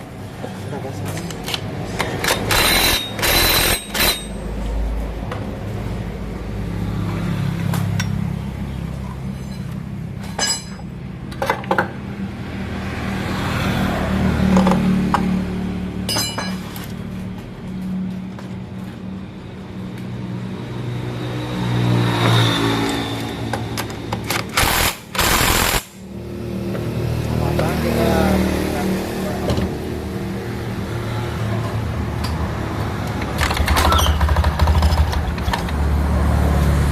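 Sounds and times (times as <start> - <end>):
metal parts clinking: 1.4 - 4.4, 9.4 - 10.9.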